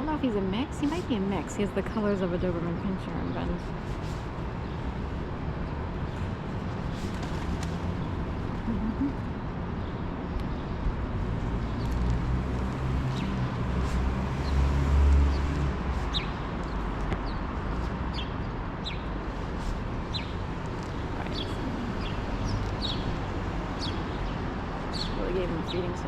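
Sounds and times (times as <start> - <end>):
city background noise: 0.0 - 26.0
vehicle passing with low hum: 0.0 - 26.0
small birds chirping: 15.9 - 26.0.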